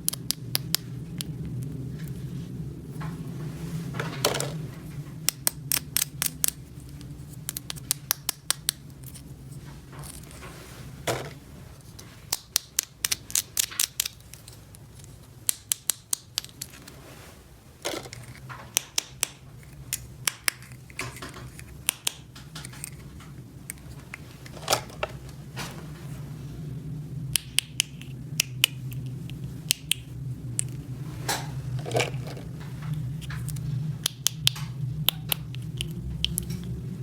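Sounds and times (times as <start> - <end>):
steady low hum: 0.0 - 37.0
plastic toy pieces clicking: 12.3 - 14.6, 15.4 - 16.8.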